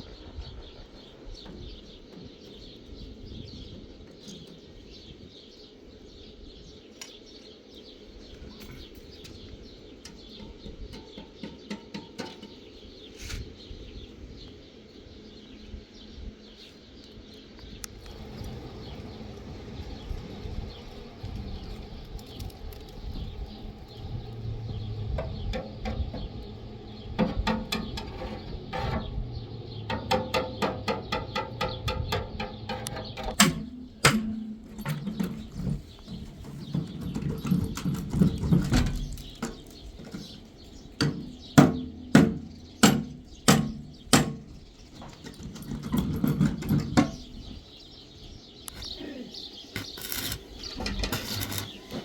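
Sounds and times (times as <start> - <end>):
small birds chirping: 0.0 - 52.0
low rumble: 18.0 - 34.8.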